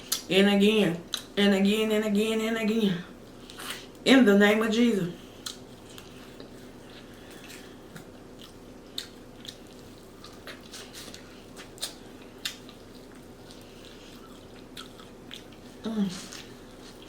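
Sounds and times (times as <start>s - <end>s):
person chewing food: 5.3s - 17.0s.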